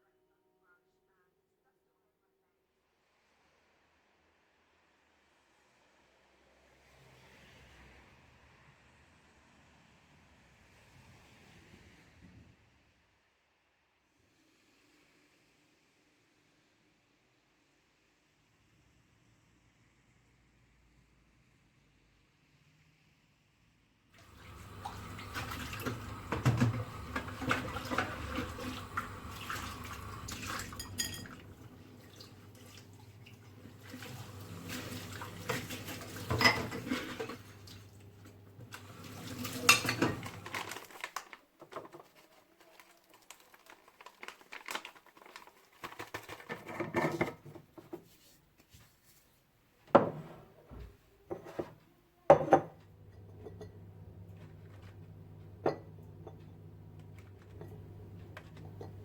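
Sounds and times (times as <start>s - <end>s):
dishes and cutlery clinking: 30.3s - 31.6s, 35.4s - 37.8s, 39.2s - 41.1s, 51.3s - 54.8s, 55.6s - 56.6s, 57.4s - 59.0s.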